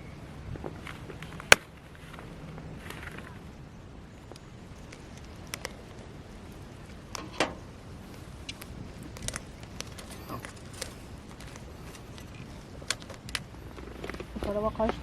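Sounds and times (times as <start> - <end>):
low steady background noise: 0.0 - 15.0
sharp clicks and pops: 4.3 - 6.0, 8.4 - 15.0.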